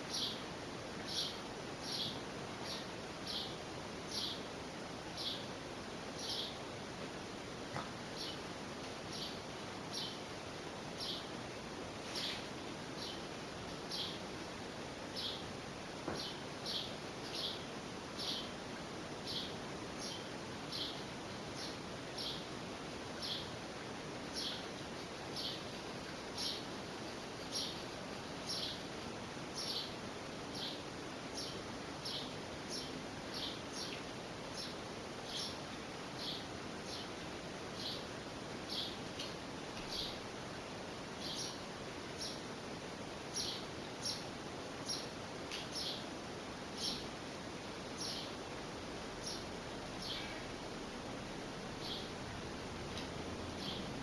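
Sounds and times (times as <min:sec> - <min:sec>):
bird chirping: 0:01.1 - 0:04.4, 0:34.6 - 0:35.6, 0:38.7 - 0:39.0, 0:39.9 - 0:40.2, 0:41.2 - 0:41.6, 0:43.3 - 0:44.2, 0:44.9 - 0:46.0, 0:46.8 - 0:47.0, 0:48.0 - 0:48.4, 0:49.2 - 0:50.4, 0:51.8 - 0:52.2, 0:53.6 - 0:54.0.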